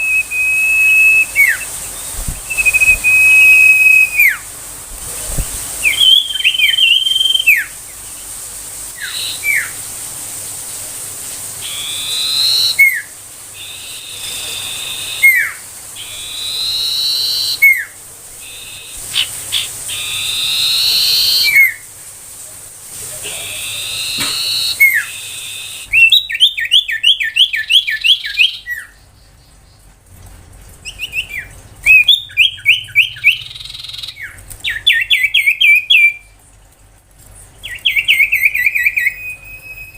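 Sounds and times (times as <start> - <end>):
bird whistling: 0.0 - 4.5, 5.8 - 7.8, 9.0 - 9.8, 11.6 - 21.9, 23.4 - 29.0, 30.8 - 36.4, 37.6 - 39.9
bird sharp repeated chirps: 11.6 - 21.8, 23.6 - 29.0.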